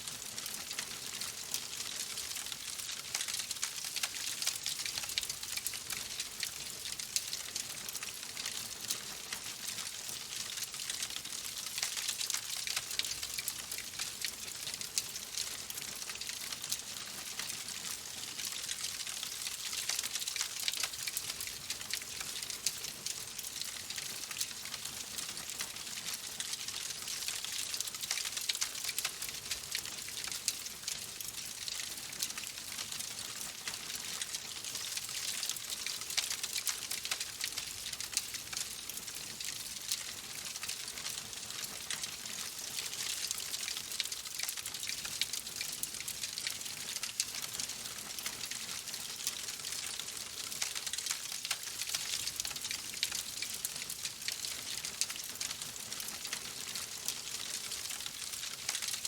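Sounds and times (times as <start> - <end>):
wood fire crackling: 47.3 - 56.8.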